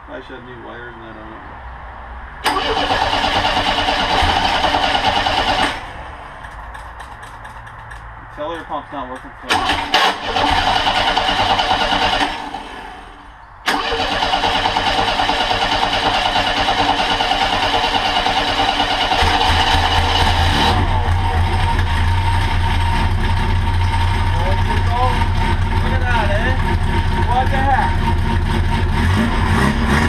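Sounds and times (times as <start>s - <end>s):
engine starter cranking: 2.4s - 8.0s, 9.4s - 25.8s.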